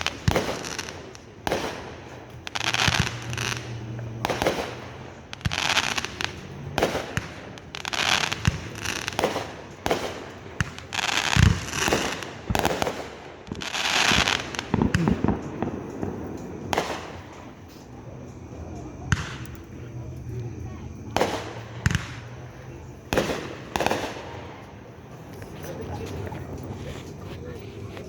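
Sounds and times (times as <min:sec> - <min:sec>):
fireworks hissing bursts: 0:00.0 - 0:28.0
fireworks boom: 0:08.3 - 0:26.8.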